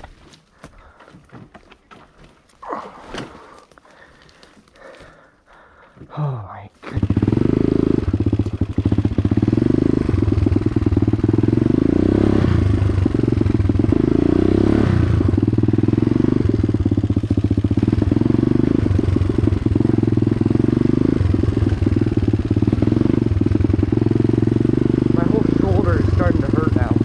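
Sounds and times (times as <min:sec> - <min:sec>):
dirt bike engine revving: 0:06.8 - 0:27.0.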